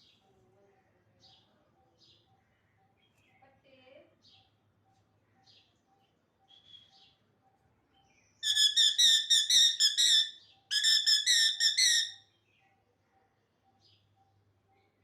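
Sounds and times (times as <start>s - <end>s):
parrot whistling shrilly: 8.4s - 12.2s.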